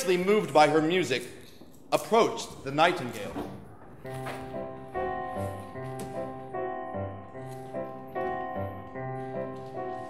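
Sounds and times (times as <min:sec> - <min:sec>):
piano playing chords: 0:02.0 - 0:10.0.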